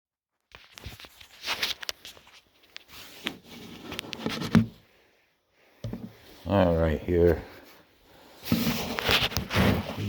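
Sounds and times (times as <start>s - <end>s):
knocks and scrapes of handling: 0.5s - 5.0s, 5.7s - 6.4s, 7.2s - 10.0s.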